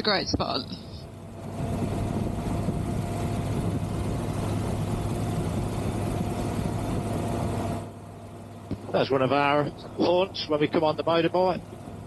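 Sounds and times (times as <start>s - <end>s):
motorcycle engine cruising: 0.0s - 12.0s
road noise: 0.0s - 12.0s
wind noise: 1.4s - 7.7s.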